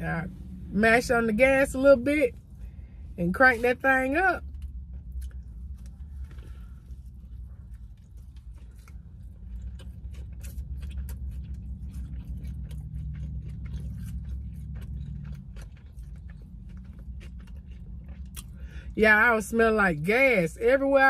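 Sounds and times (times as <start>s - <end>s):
steady low hum: 0.0s - 21.0s
person chewing a sandwich: 4.4s - 19.0s.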